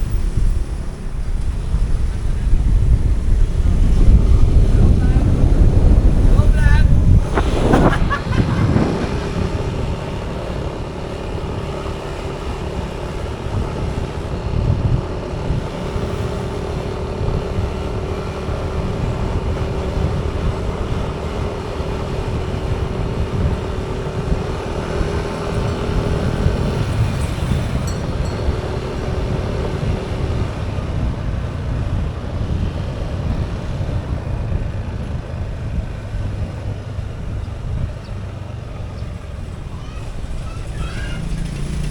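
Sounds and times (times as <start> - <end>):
motorcycle engine: 0.0 - 41.9
road traffic: 0.0 - 41.9.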